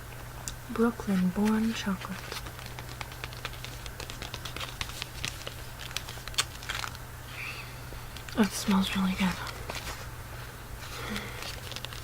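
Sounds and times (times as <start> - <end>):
low background hum: 0.0 - 12.0
wrapper crinkling and tearing: 1.1 - 7.0, 10.8 - 12.0
wrapper snap: 1.4 - 7.0, 11.0 - 12.0.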